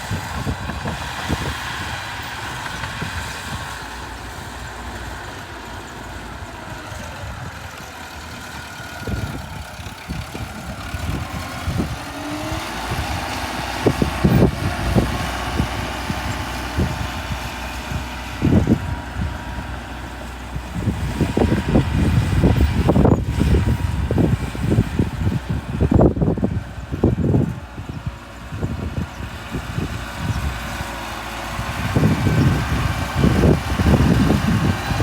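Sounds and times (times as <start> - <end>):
low thuds and buffeting: 0.0 - 4.9, 9.0 - 35.0
heavy diesel machinery running: 0.0 - 35.0.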